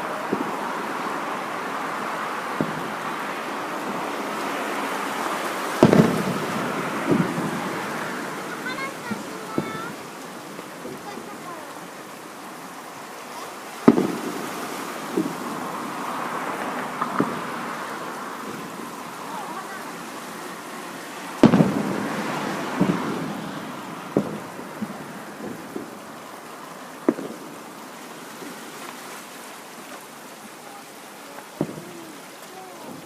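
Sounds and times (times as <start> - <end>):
fireworks bursting: 0.0 - 33.0
steady hiss: 0.0 - 33.0.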